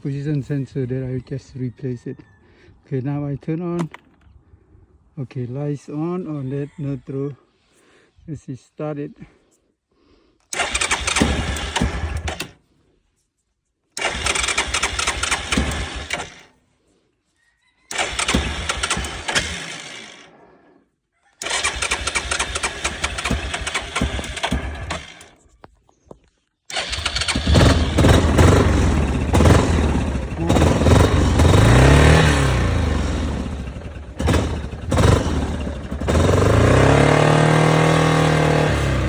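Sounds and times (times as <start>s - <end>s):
atv engine starting: 10.5s - 12.6s, 14.0s - 16.6s, 17.9s - 20.8s, 21.4s - 25.4s, 26.7s - 39.0s.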